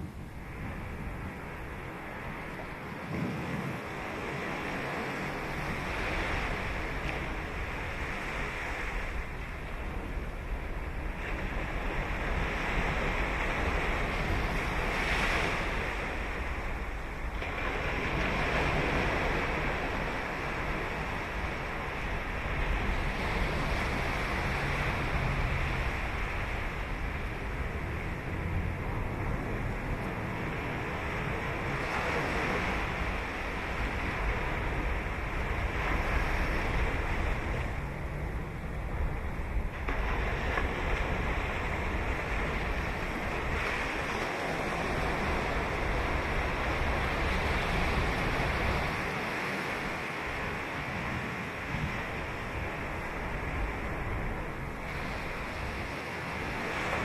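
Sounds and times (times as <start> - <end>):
ocean waves breaking on sand: 0.0 - 57.0.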